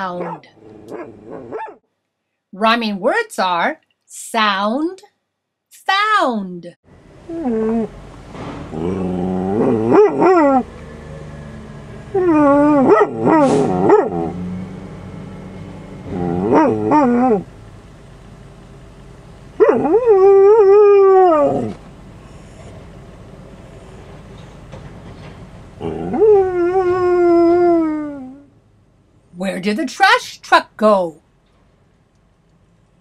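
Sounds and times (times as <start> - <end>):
dog howling: 8.8 - 10.7, 12.1 - 14.4, 16.1 - 17.5, 19.6 - 21.8, 25.8 - 28.4.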